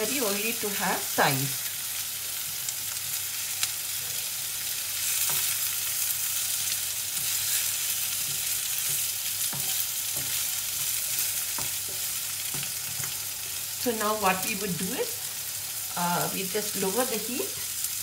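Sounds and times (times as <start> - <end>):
chicken and onions sizzling in oil: 0.0 - 18.0
spatulas tapping and scraping: 7.1 - 13.2.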